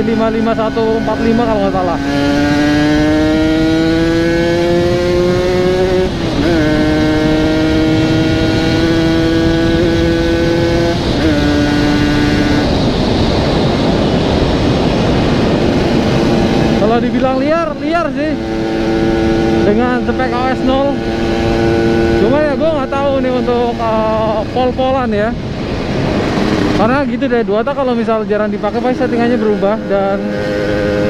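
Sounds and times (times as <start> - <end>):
person talking: 0.0 - 2.2, 16.7 - 18.5, 19.6 - 21.1, 22.1 - 25.4, 26.7 - 30.4
motorcycle engine under throttle: 0.0 - 31.0
rushing noise: 8.8 - 31.0.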